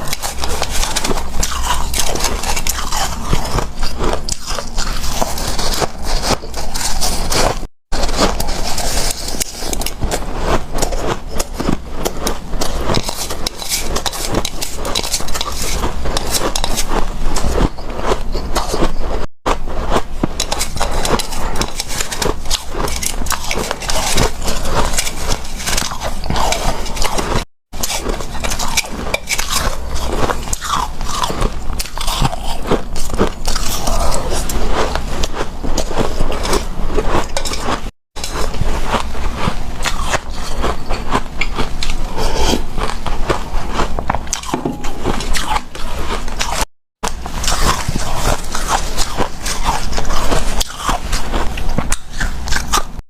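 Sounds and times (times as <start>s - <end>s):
ice crunching being chewed: 0.0s - 53.0s.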